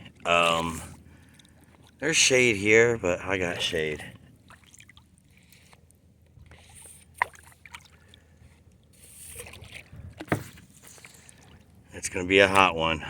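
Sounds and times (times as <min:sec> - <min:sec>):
paddle splashing water: 0:03.4 - 0:12.8.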